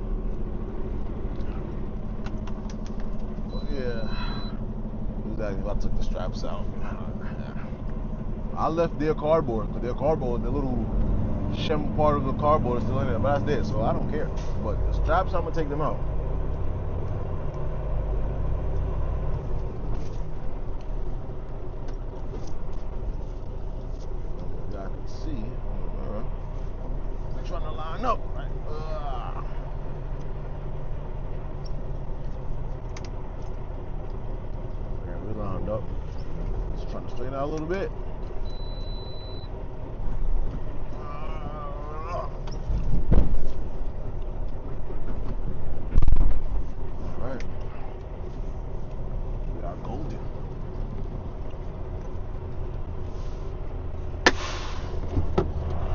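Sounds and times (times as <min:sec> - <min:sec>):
diesel truck engine rumbling: 0:00.0 - 0:55.9
heavy low thump: 0:42.8 - 0:43.5.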